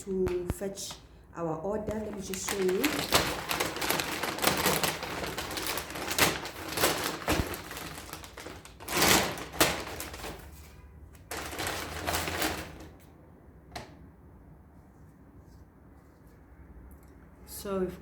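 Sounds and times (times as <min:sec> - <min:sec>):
food packaging rustling: 0:01.8 - 0:13.1.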